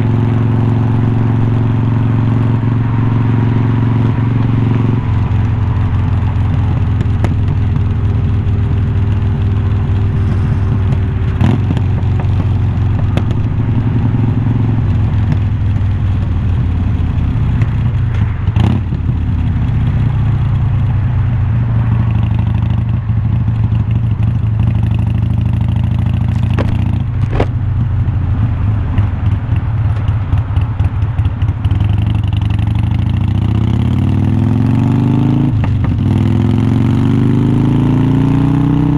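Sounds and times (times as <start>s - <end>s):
motorcycle exhaust while riding: 0.0s - 38.9s
sharp knocks: 26.4s - 27.5s.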